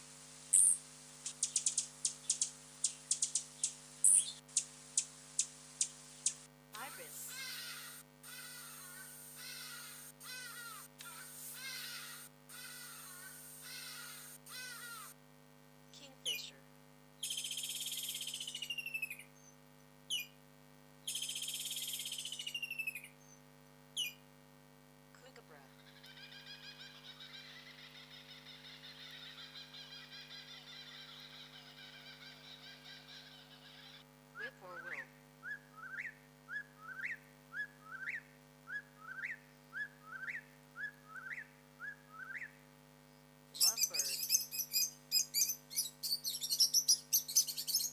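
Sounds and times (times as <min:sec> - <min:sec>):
steady low hum: 0:00.0 - 0:47.9
songbird trilling: 0:00.5 - 0:08.0, 0:17.2 - 0:19.5, 0:20.1 - 0:20.4, 0:21.1 - 0:23.1, 0:24.0 - 0:24.2, 0:43.6 - 0:47.9
bird harsh calls: 0:00.5 - 0:15.1, 0:25.8 - 0:34.0, 0:43.6 - 0:47.9
bird whistling call: 0:17.2 - 0:20.3, 0:21.1 - 0:23.3, 0:35.4 - 0:42.5, 0:43.6 - 0:47.9.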